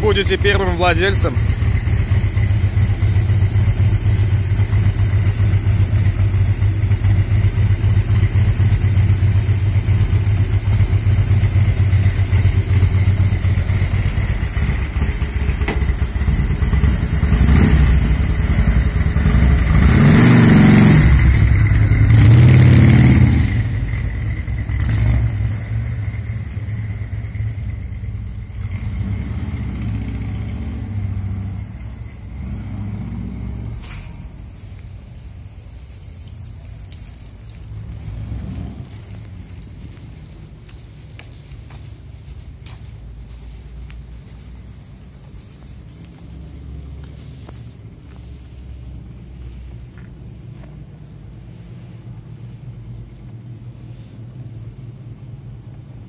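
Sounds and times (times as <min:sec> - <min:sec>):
motorcycle engine idling: 0:00.0 - 0:20.1, 0:20.9 - 0:32.5
motorcycle revving and pulling away: 0:00.0 - 0:56.0.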